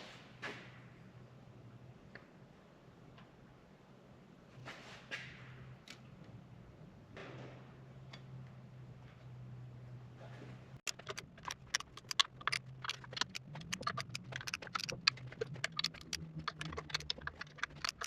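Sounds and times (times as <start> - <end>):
metallic clicking of hand tools: 10.9 - 18.0.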